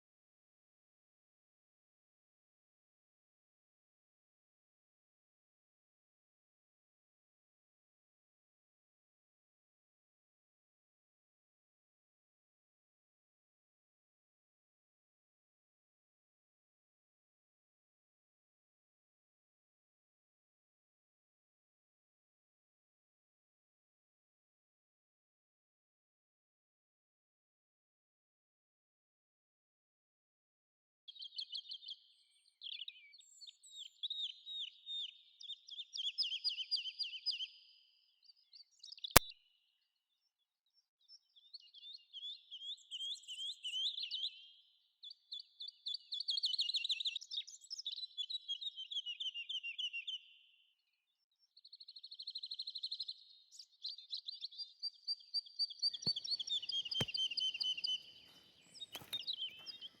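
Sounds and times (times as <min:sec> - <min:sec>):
sharp click: 0:59.0 - 0:59.2.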